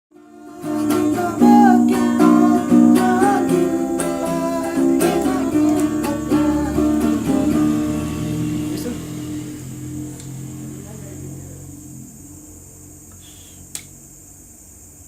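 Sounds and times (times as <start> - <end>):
person singing: 0.1 - 11.4
strummed string instrument: 0.1 - 12.9.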